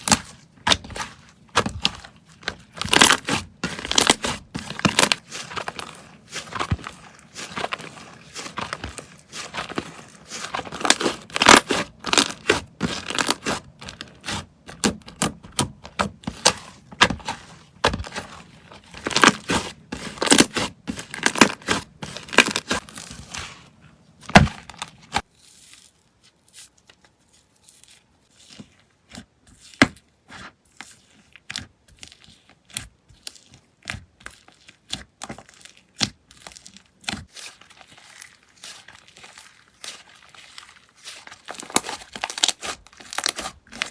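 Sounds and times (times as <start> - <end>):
slime crackling and popping: 1.6 - 15.7, 19.0 - 23.1, 34.8 - 43.9.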